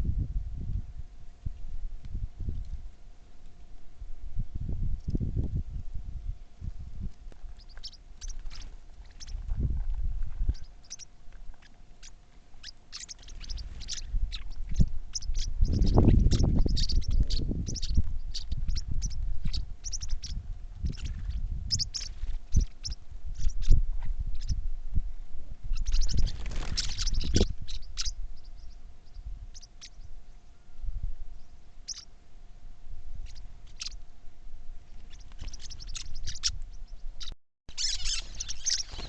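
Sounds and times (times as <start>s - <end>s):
faint steady hum: 0.0s - 39.0s
small birds chirping: 7.3s - 24.6s, 25.6s - 30.6s, 31.3s - 32.1s, 33.2s - 34.0s, 34.8s - 39.0s.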